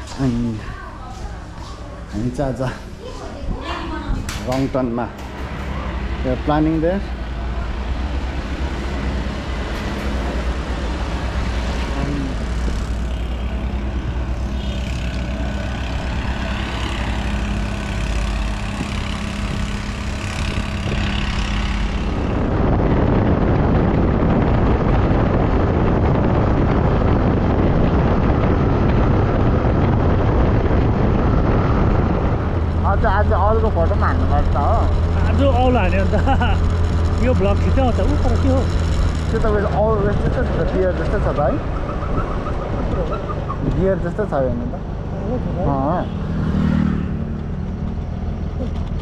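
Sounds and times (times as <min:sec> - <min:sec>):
vehicle engine rumble: 0:00.0 - 0:49.0
rough rush of noise: 0:03.6 - 0:48.6.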